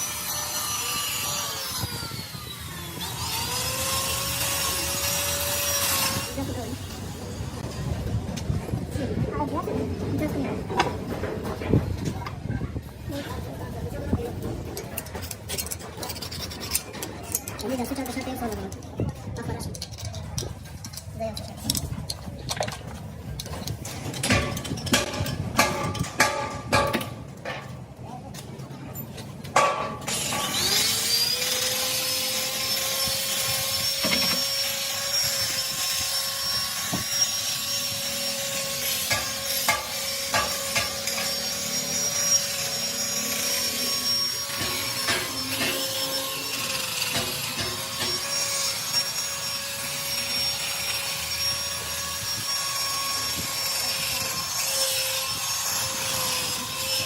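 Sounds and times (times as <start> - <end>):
grinding scraping on metal: 0.0 - 8.0, 13.2 - 22.5, 29.6 - 57.0
power tool whining: 30.1 - 57.0.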